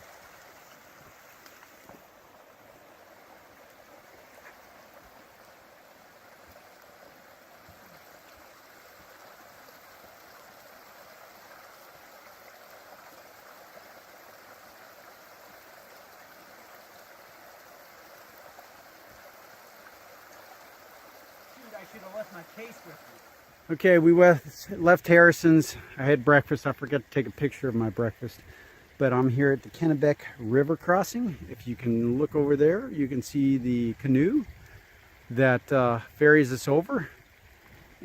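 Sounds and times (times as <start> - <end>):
stream flowing: 0.0 - 38.0.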